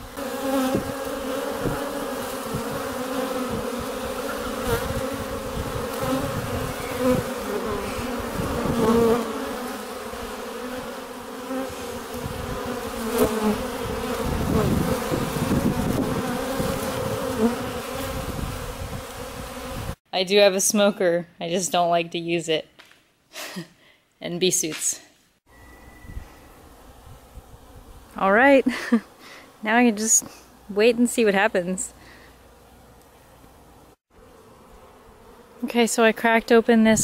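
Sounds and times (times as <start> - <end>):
bees buzzing: 0.0 - 20.0, 25.5 - 37.0.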